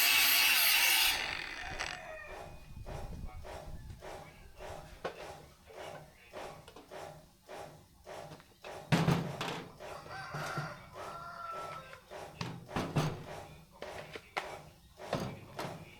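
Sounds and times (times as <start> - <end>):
hand tool stroking saw blade: 0.0 - 2.5.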